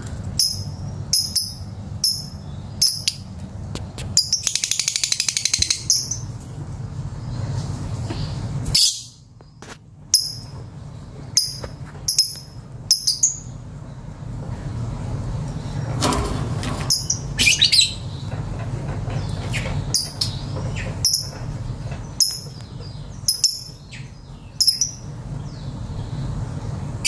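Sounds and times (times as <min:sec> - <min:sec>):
bird chattering trill: 0:04.2 - 0:06.3
lovebird chirping: 0:04.2 - 0:06.3, 0:11.3 - 0:13.6, 0:16.9 - 0:18.3, 0:22.1 - 0:25.6.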